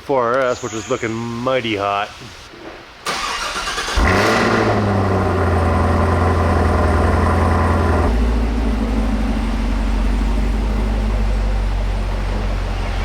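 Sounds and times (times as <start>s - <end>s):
car engine idling: 3.3s - 13.0s.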